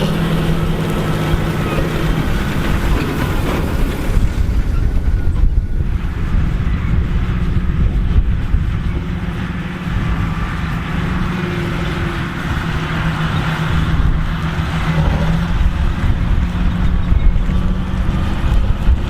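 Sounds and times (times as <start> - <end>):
baler mechanical rushing noise: 0.0 - 19.0
tractor engine hum: 0.0 - 19.0.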